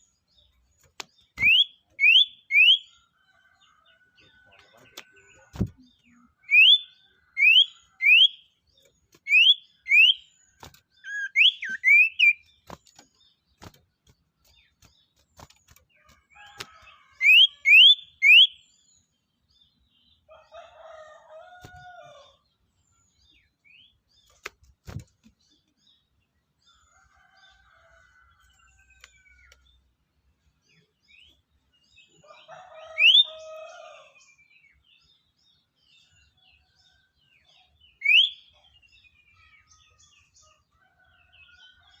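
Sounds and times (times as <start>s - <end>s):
songbird whistled calls: 11.0s - 12.4s, 38.0s - 38.4s.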